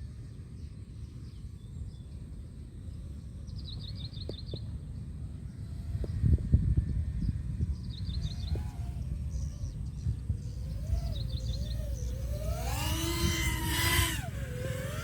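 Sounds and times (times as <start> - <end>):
birds chirping: 7.7 - 15.0
drone motors whining: 7.9 - 15.0.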